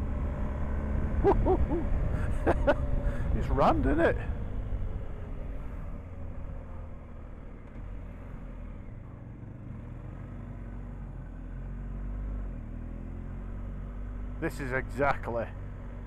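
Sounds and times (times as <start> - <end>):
road noise: 0.0 - 16.0.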